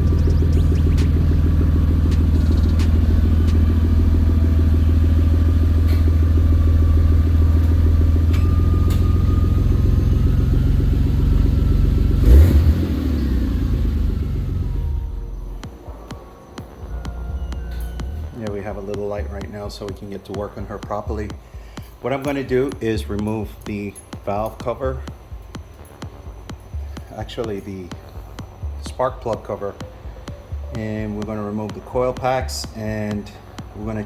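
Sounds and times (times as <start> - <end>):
car engine idling roughly: 0.0 - 12.5.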